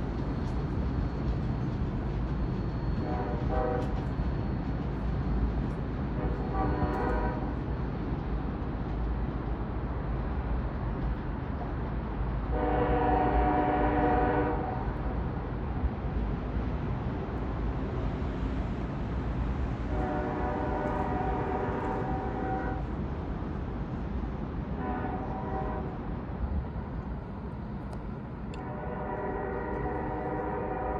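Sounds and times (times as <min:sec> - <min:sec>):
train rumbling: 0:00.0 - 0:30.9
diesel locomotive horn: 0:03.0 - 0:04.0, 0:06.1 - 0:07.6, 0:12.5 - 0:15.1, 0:19.8 - 0:22.9, 0:24.7 - 0:26.1, 0:28.6 - 0:30.9.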